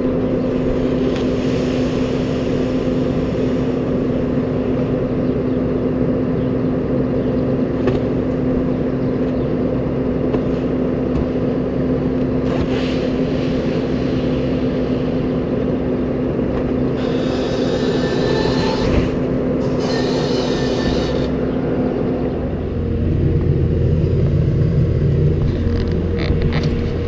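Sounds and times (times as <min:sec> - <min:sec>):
tractor engine humming: 0:00.0 - 0:27.0
high metallic squeaking: 0:19.6 - 0:21.4.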